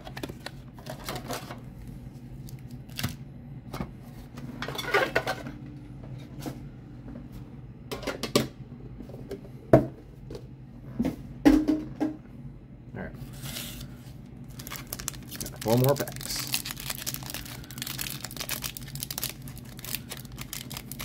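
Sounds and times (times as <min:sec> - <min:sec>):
wrapping rustling: 0:14.4 - 0:21.0.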